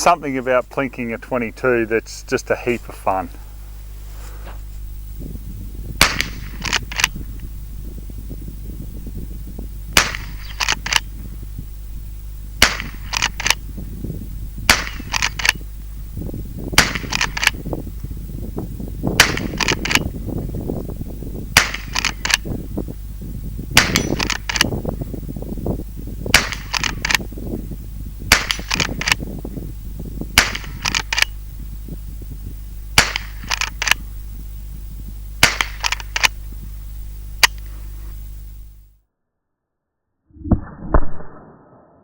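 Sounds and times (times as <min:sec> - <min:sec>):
rifle shots: 0:06.0 - 0:07.2, 0:10.0 - 0:11.1, 0:12.6 - 0:13.6, 0:14.7 - 0:15.6, 0:16.8 - 0:17.6, 0:19.2 - 0:20.1, 0:21.6 - 0:22.5, 0:23.8 - 0:24.7, 0:26.3 - 0:27.2, 0:28.3 - 0:29.2, 0:30.4 - 0:31.4, 0:33.0 - 0:34.0, 0:35.4 - 0:36.4.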